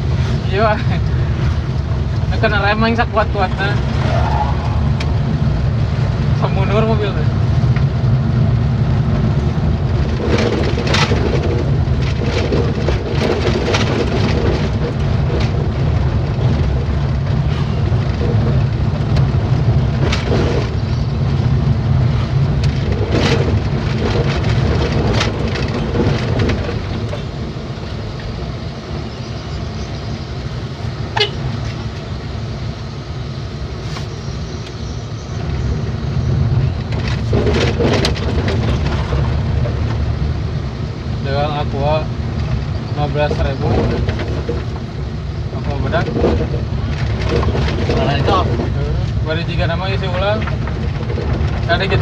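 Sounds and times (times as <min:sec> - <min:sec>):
truck engine and road drone: 0:00.0 - 0:52.0
knocks and rattles: 0:09.3 - 0:27.4, 0:36.0 - 0:40.3, 0:42.3 - 0:52.0.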